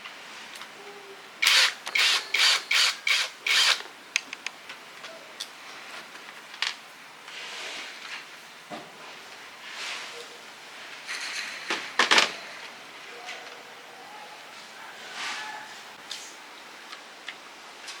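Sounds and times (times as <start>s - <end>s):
rubbing or scraping strokes: 15.0s - 16.3s.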